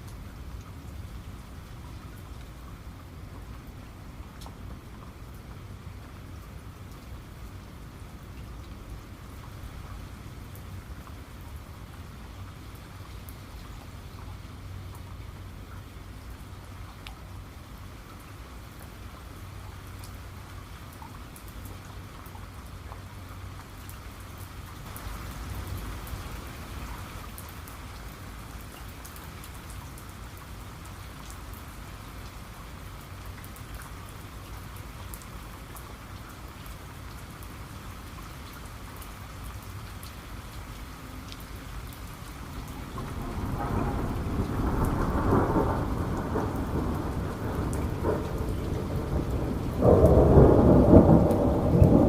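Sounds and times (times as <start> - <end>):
steady rain: 0.0 - 52.0
raindrops ticking: 18.2 - 52.0
thunder rumbling: 42.6 - 52.0.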